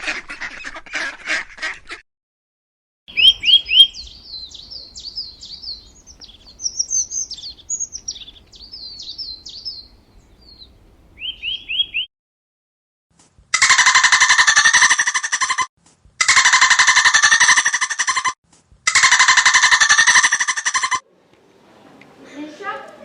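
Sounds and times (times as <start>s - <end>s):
songbird chirping: 3.1s - 12.1s
animal rapid calls: 18.9s - 21.0s.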